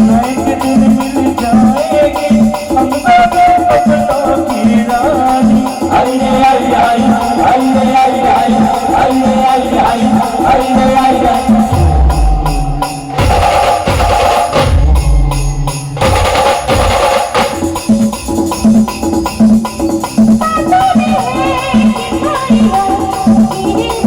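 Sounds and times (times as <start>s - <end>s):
bouncing bass line: 11.6s - 18.8s
heavy low drum hits: 11.7s - 18.0s.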